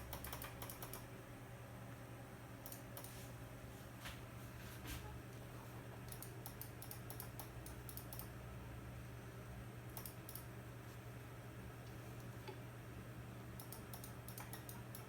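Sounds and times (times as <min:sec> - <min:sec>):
quick light sharp clicks: 0:13.6 - 0:15.0.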